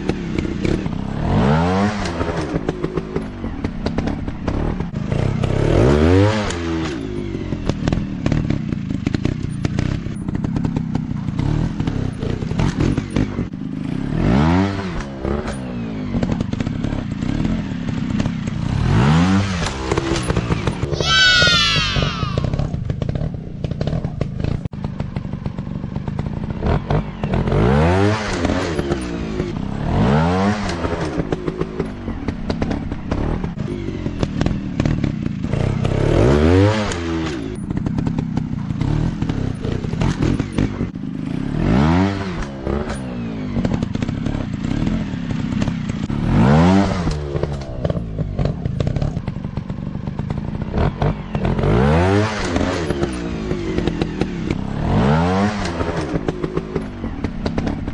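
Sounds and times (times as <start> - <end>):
dirt bike engines revving: 11.3 - 24.6.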